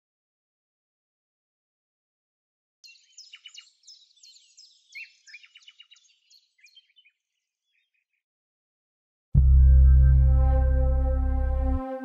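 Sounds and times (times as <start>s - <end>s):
faint birdsong: 2.8s - 8.3s.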